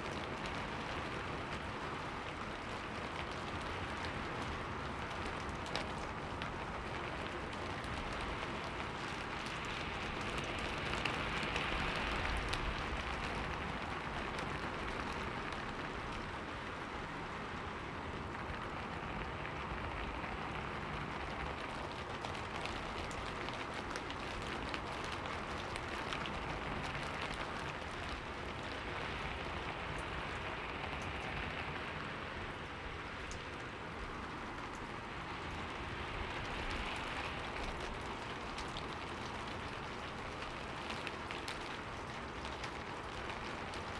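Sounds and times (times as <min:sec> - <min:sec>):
rain drops ticking on a surface: 0:00.0 - 0:43.9.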